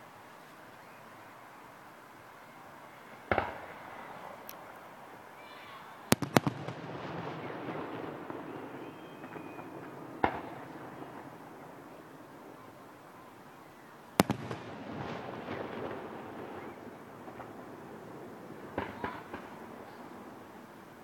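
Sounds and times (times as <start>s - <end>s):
distant firework bangs: 3.3s - 4.7s, 6.0s - 13.4s, 14.1s - 20.7s
echoing rumble: 6.2s - 11.9s, 14.2s - 18.7s.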